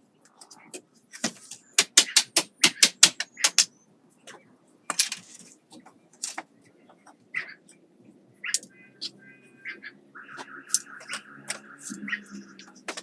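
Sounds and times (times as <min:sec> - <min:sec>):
sharp taps: 0:01.2 - 0:03.7.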